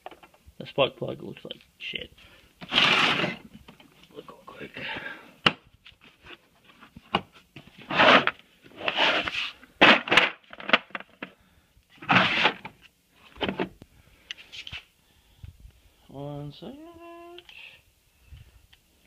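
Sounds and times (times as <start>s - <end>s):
rustling and scraping: 2.6s - 4.4s, 5.7s - 13.8s, 14.4s - 14.9s.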